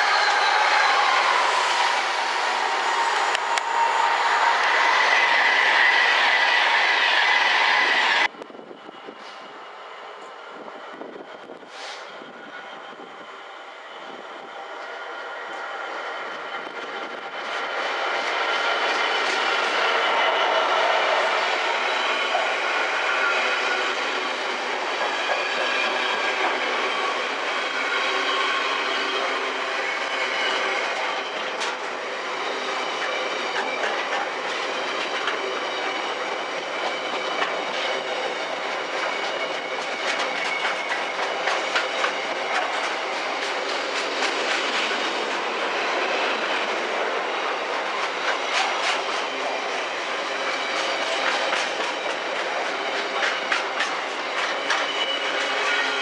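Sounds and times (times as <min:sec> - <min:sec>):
train wheels clicking on rails: 0:14.8 - 0:56.0.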